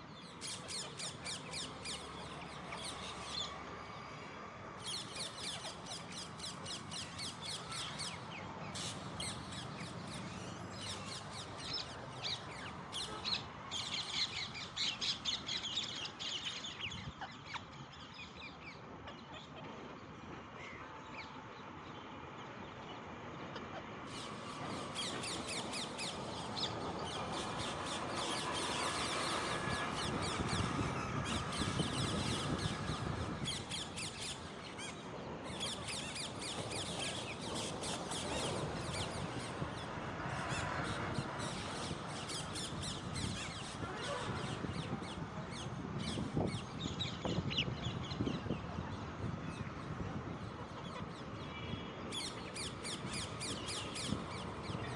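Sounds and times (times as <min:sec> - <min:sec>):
parakeets squawking and chattering: 0:04.8 - 0:19.3, 0:24.1 - 0:48.6.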